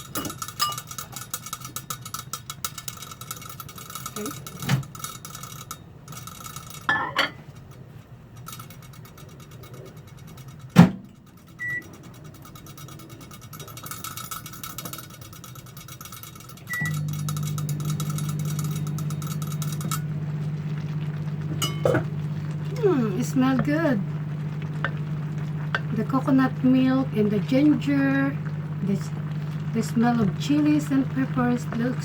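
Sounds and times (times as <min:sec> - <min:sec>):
microwave clunk: 0:10.8 - 0:11.1
microwave humming: 0:16.6 - 0:32.0.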